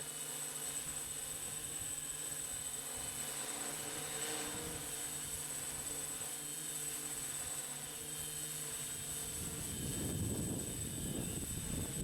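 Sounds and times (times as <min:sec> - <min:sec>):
wind buffeting microphone: 0:09.3 - 0:12.0.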